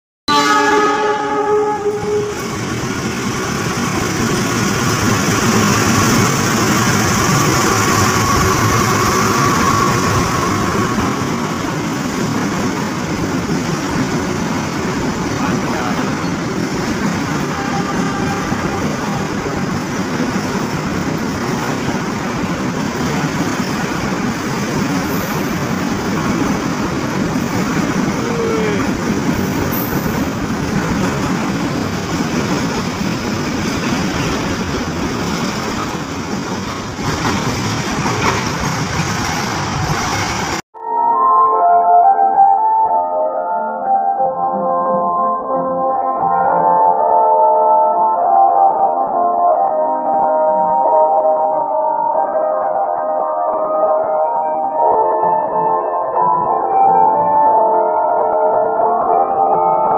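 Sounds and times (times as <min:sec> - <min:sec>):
locomotive horn: 0:00.3 - 0:02.6, 0:07.4 - 0:11.6, 0:17.3 - 0:19.7
train rumbling on rails: 0:00.3 - 0:40.7, 0:46.1 - 0:59.9
high-pitched tone: 0:40.8 - 0:59.9.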